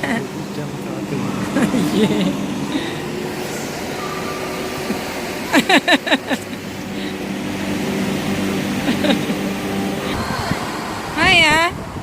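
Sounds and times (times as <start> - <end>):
electric blower fan humming: 0.0 - 12.0.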